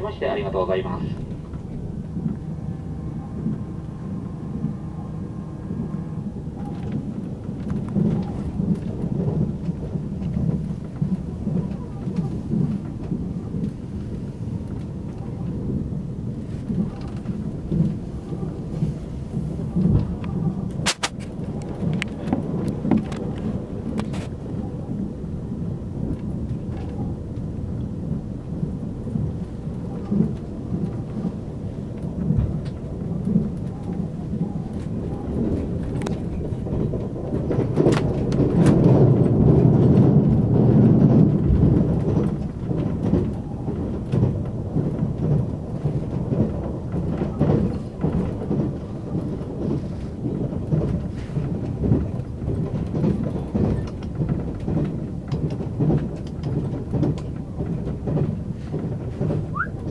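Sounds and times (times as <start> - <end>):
moving train rumble: 0.0 - 59.9
running gear clicks and knocks: 30.0 - 59.9.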